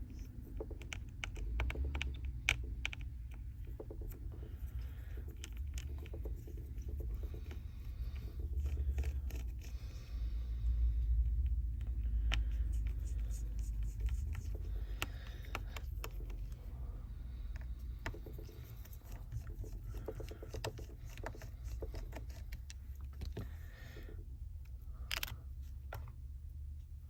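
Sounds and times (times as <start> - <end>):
steady low hum: 0.0 - 27.0
repair tools clicking and scraping: 11.3 - 16.6.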